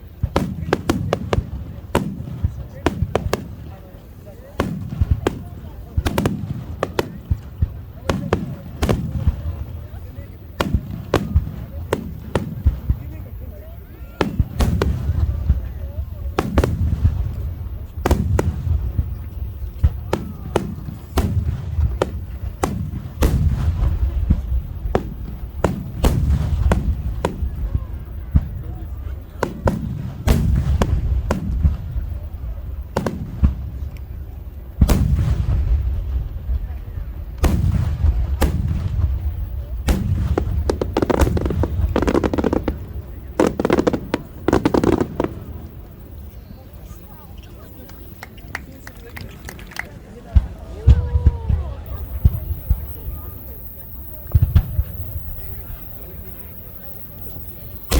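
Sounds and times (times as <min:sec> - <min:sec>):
rumble of echoing detonations: 0:00.0 - 0:46.3, 0:50.3 - 0:57.9
firework shells booming: 0:00.0 - 0:46.4, 0:50.2 - 0:57.9.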